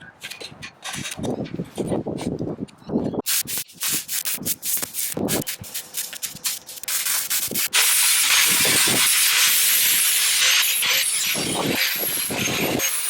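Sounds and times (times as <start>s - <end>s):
irregular scraping strokes: 3.3s - 13.0s.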